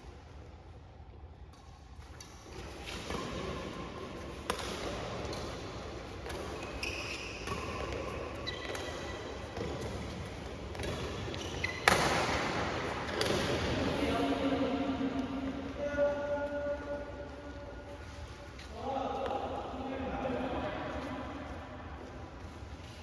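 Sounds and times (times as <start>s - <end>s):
sports hall hum: 0.0s - 23.0s
rackets hitting shuttlecock: 2.5s - 14.0s.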